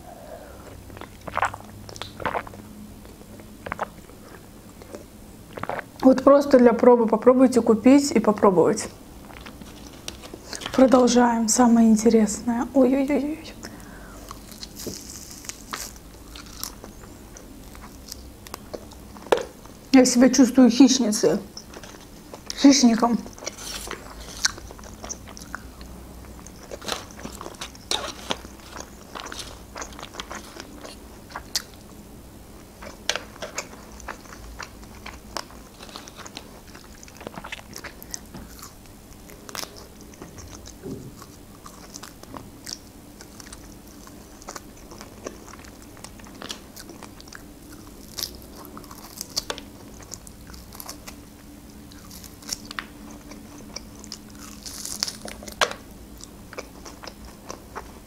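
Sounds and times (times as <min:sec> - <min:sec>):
person chewing meat: 0:00.1 - 0:06.0, 0:13.7 - 0:19.9, 0:23.3 - 0:58.0
mouth and teeth clicks: 0:00.9 - 0:06.0.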